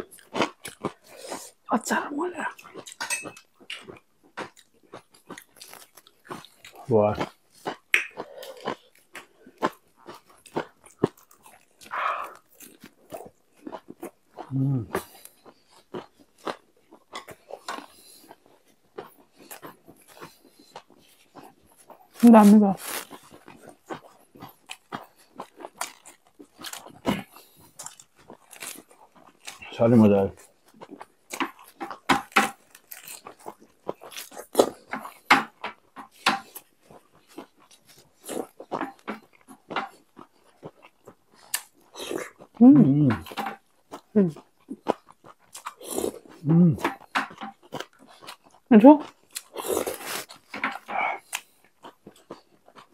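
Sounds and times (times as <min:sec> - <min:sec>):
chewing and crunching mouth sounds: 0:00.0 - 0:52.9
crunchy bite into lettuce: 0:22.8 - 0:23.3, 0:49.3 - 0:51.6.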